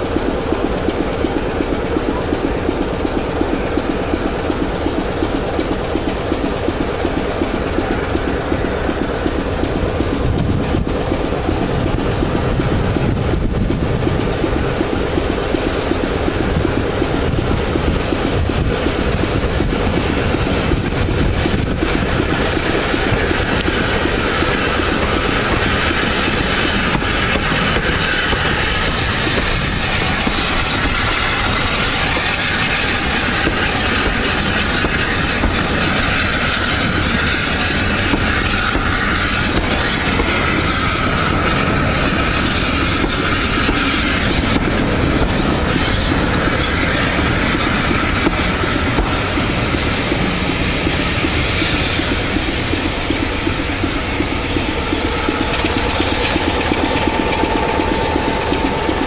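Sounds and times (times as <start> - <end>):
train rumbling on track: 0.0 - 59.0
wheels clacking over rail joints: 0.0 - 59.0.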